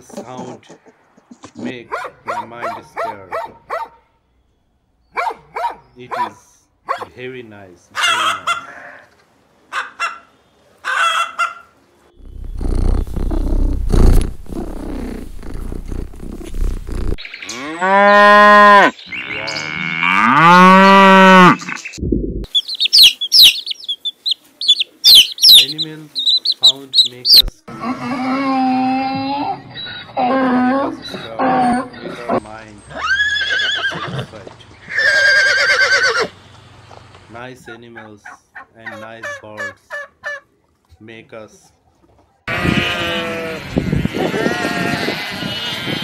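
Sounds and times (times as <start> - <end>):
dog barking: 1.9 - 4.1, 5.1 - 7.1
low rumble: 12.2 - 17.2, 22.0 - 22.5
long animal calls: 12.2 - 19.5, 22.5 - 32.1
ducklings peeping: 22.5 - 27.5.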